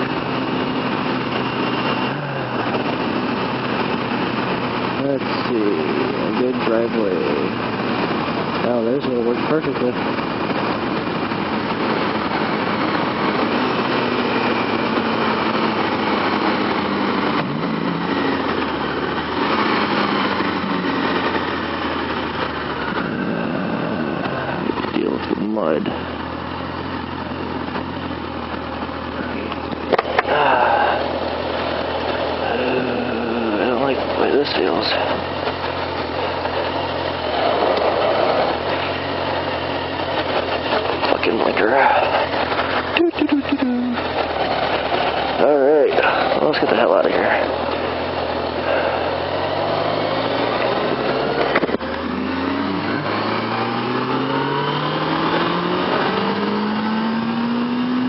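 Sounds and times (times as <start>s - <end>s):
wind noise: 0.0s - 26.2s
motorcycle engine running: 0.0s - 58.0s.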